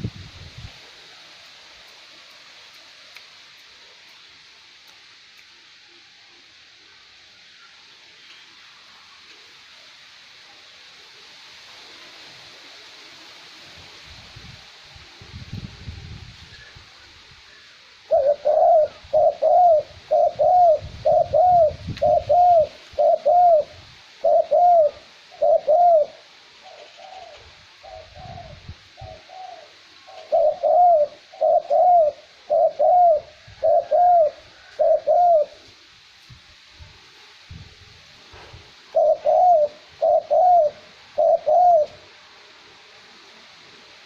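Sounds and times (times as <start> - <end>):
light wind rumble: 0.0 - 2.1, 13.6 - 26.1, 27.2 - 29.7, 31.6 - 41.2
dove cooing: 18.0 - 35.7, 38.9 - 42.1.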